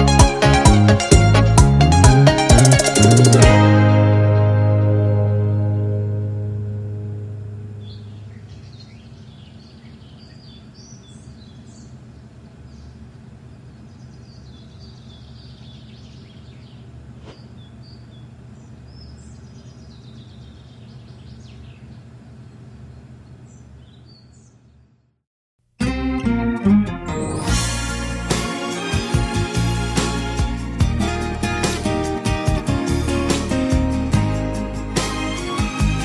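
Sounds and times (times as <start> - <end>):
music: 0.0 - 8.0, 25.8 - 36.0
low outdoor rumble: 0.8 - 24.7
birds chirping: 7.6 - 25.0.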